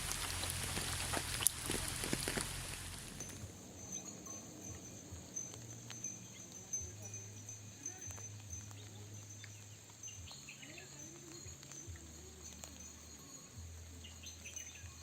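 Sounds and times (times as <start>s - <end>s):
faint bird chirps: 3.2s - 15.0s.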